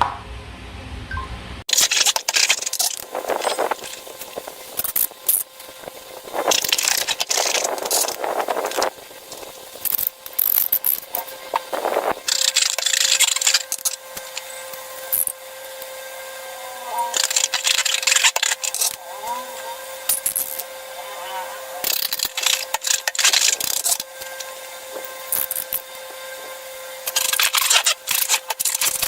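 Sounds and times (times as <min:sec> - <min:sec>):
sticky slime crackling and scraping: 0:01.7 - 0:15.2, 0:21.8 - 0:25.8, 0:27.0 - 0:29.0.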